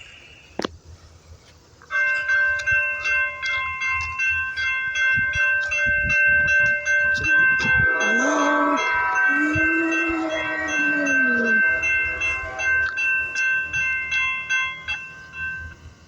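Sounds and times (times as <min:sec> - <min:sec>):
passing train clatter: 0:01.4 - 0:16.0
locomotive air horn chord: 0:06.1 - 0:15.8.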